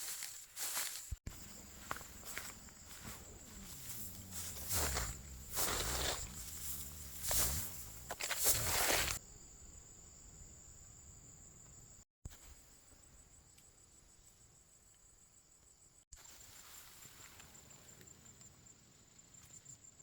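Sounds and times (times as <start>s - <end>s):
rustling in dry vegetation: 0.0s - 9.2s
faint outdoor ambience: 0.0s - 20.0s
insect trill: 0.1s - 20.0s.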